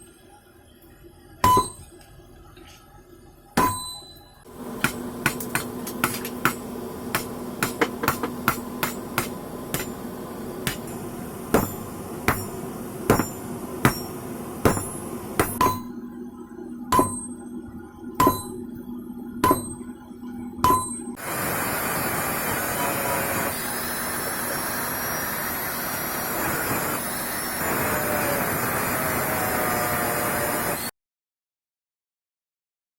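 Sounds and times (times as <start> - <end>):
hammer ringing on anvil: 1.4 - 1.9, 3.6 - 10.0, 10.7 - 16.0, 16.9 - 17.5, 18.2 - 18.8, 19.4 - 19.9, 20.6 - 21.2.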